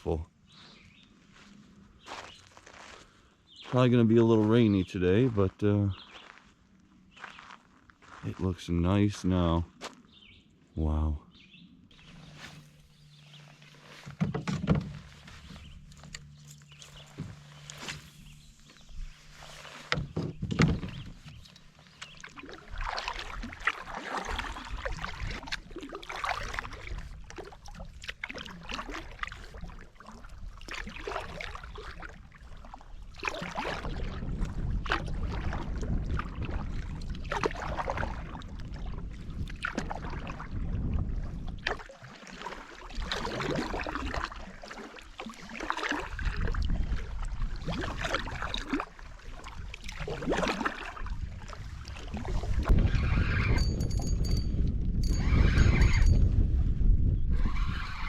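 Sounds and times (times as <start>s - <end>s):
paddle splashing in water: 11.9s - 53.9s.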